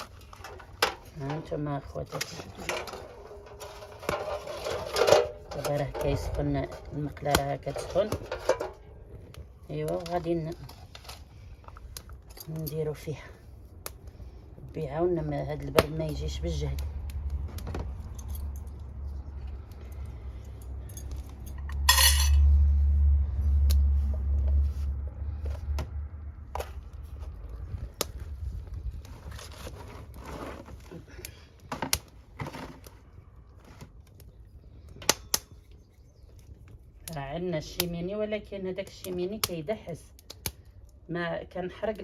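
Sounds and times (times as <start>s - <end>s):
metal cookware clinking: 2.2s - 8.9s, 21.6s - 22.5s
low rumble: 16.1s - 29.2s.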